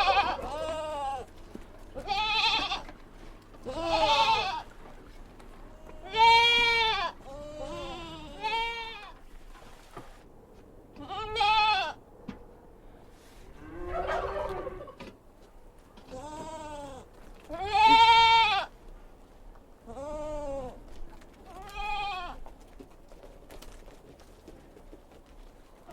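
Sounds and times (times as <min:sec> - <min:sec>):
livestock bleating: 0:00.0 - 0:01.4, 0:02.0 - 0:03.0, 0:03.6 - 0:04.7, 0:05.7 - 0:09.2, 0:11.0 - 0:12.0, 0:16.1 - 0:18.7, 0:19.8 - 0:20.8, 0:21.5 - 0:22.4.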